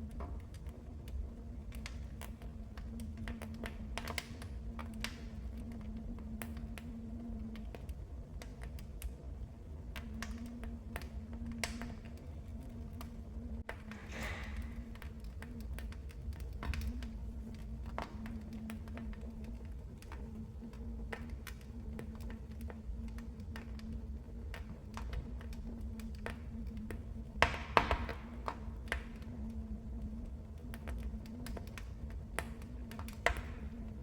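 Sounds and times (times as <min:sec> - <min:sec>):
low rumble of flames: 0:00.0 - 0:34.0
wood fire crackling and popping: 0:00.0 - 0:34.0.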